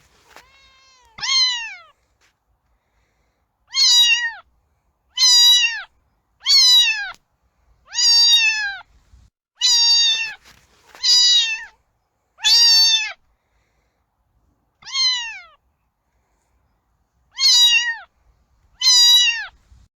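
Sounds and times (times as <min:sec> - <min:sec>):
cat meowing: 0:00.2 - 0:01.9, 0:03.7 - 0:04.4, 0:05.2 - 0:07.2, 0:07.9 - 0:08.8, 0:09.6 - 0:10.4, 0:11.0 - 0:11.8, 0:12.4 - 0:13.2, 0:14.8 - 0:15.6, 0:17.3 - 0:18.1, 0:18.8 - 0:19.6.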